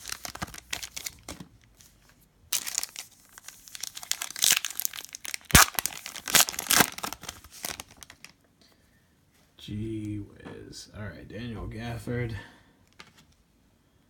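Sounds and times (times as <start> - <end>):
plastic wrapper crinkling and tearing: 0.0 - 1.9, 2.5 - 8.4
sharp snap of plastic wrapper: 4.1 - 8.4.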